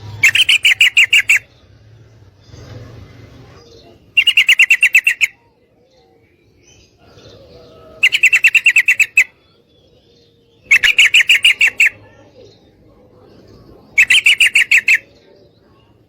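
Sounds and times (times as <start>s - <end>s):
bird chattering calls: 0.0s - 1.6s, 3.5s - 5.5s, 8.0s - 9.4s, 10.6s - 12.3s, 13.9s - 15.9s.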